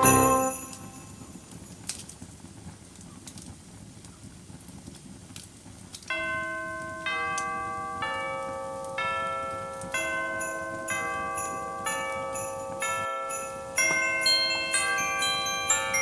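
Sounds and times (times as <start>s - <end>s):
bell-like chime music: 0.0s - 1.6s, 6.1s - 16.0s
wood fire crackling: 0.0s - 16.0s.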